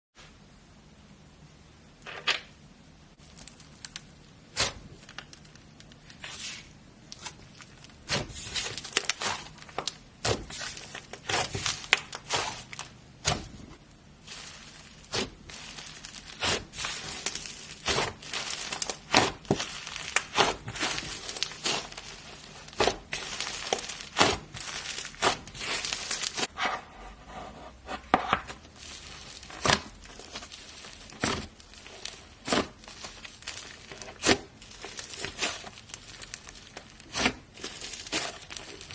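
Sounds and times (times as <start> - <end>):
squelchy slime rustles: 3.2 - 27.3, 28.0 - 38.9.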